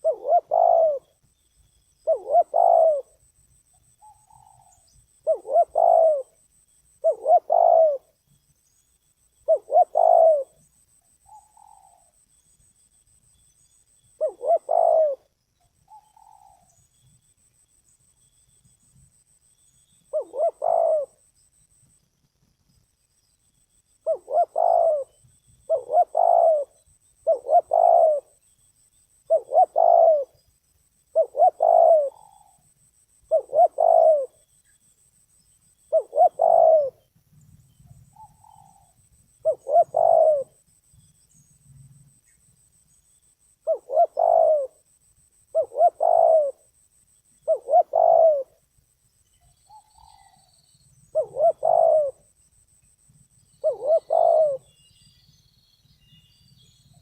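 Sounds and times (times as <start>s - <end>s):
dove cooing: 0.0s - 1.2s, 2.0s - 3.3s, 4.0s - 6.4s, 7.0s - 8.2s, 9.4s - 10.6s, 11.3s - 12.2s, 14.2s - 15.3s, 15.9s - 16.8s, 20.1s - 21.3s, 24.0s - 28.4s, 29.3s - 30.4s, 31.1s - 32.7s, 33.3s - 34.4s, 35.9s - 37.0s, 38.0s - 40.6s, 43.6s - 44.9s, 45.5s - 46.7s, 47.4s - 48.6s, 49.7s - 52.3s, 53.6s - 54.8s
faint higher coo: 0.0s - 1.2s, 2.0s - 3.2s, 4.0s - 6.4s, 7.0s - 8.2s, 9.5s - 10.6s, 14.2s - 16.8s, 20.1s - 21.3s, 24.1s - 28.4s, 29.3s - 30.4s, 31.2s - 32.7s, 33.3s - 34.4s, 35.9s - 37.0s, 38.2s - 40.6s, 43.6s - 44.8s, 45.5s - 46.7s, 47.4s - 48.6s, 49.7s - 52.3s, 53.6s - 54.9s.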